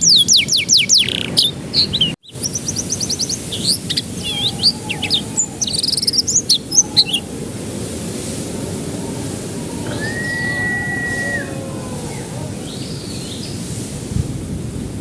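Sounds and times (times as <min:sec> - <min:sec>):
canary singing: 0:00.0 - 0:07.4.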